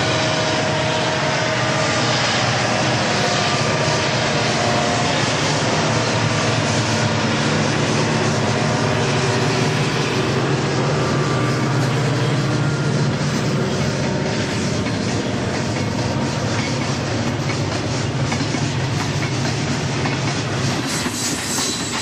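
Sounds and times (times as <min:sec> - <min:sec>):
diesel locomotive engine drone: 0:00.0 - 0:22.0
train noise: 0:00.0 - 0:22.0.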